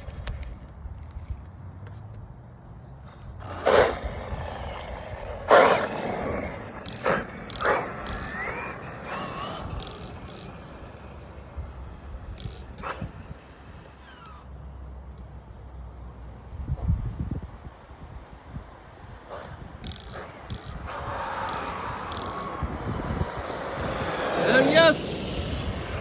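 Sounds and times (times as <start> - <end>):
electric motor whining: 3.9 - 10.8, 19.8 - 26.0.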